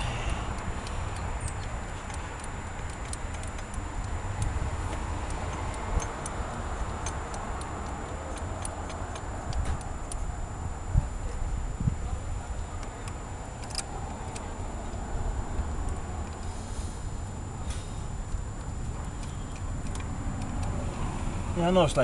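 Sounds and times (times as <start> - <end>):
metallic clicks from tools: 0.0 - 10.4, 12.8 - 16.5, 17.7 - 21.0
steady low rumble: 0.0 - 22.0.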